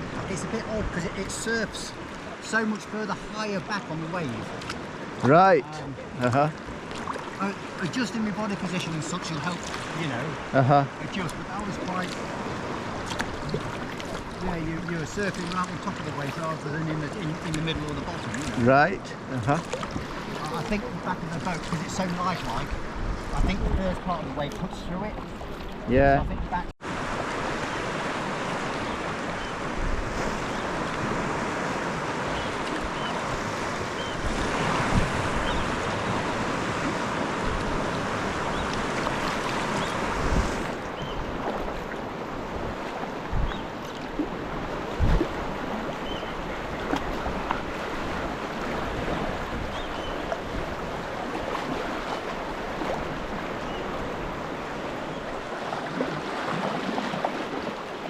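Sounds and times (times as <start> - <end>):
sea water washing and splashing: 0.0 - 25.9, 26.5 - 58.0
wind buffeting microphone: 19.9 - 55.6.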